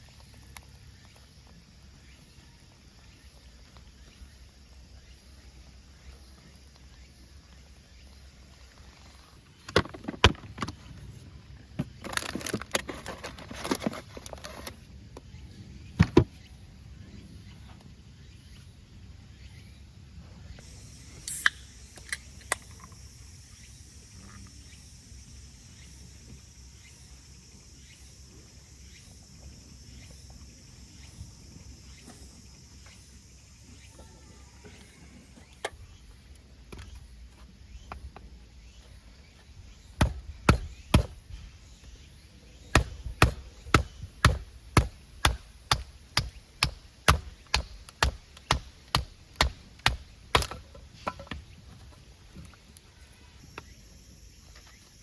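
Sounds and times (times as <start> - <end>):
faint high hiss: 18.2 - 36.1
sharp chopping strikes: 40.0 - 41.2, 42.7 - 51.4.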